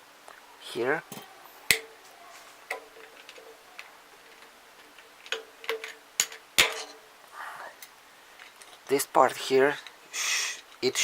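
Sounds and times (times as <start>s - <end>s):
sharp metallic clicks and knocks: 2.7s - 7.0s.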